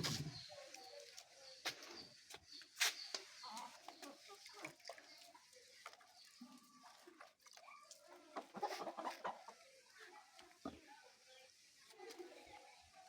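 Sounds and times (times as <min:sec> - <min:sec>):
chickens clucking: 0:02.7 - 0:07.0, 0:07.9 - 0:11.4.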